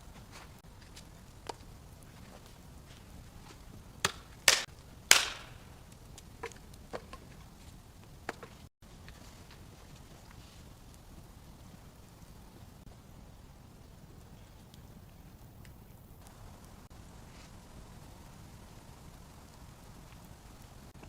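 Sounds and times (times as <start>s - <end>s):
dry wood being chopped: 4.0s - 5.6s.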